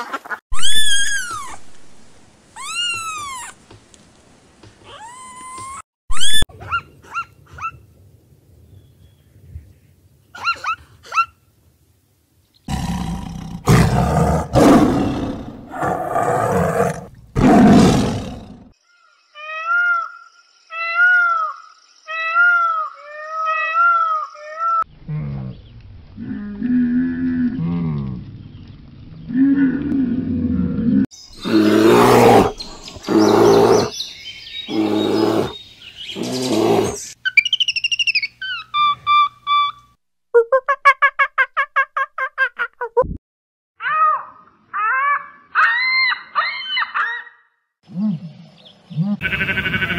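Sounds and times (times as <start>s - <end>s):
monkey chirping calls: 5.0s - 7.8s, 36.2s - 39.9s, 43.8s - 47.4s
tiger roaring: 12.7s - 18.7s, 29.4s - 33.9s, 34.7s - 35.6s, 36.2s - 37.0s.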